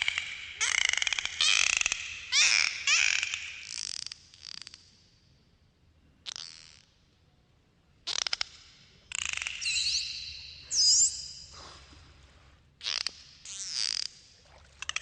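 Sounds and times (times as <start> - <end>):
dolphin clicks: 8.0 - 9.8.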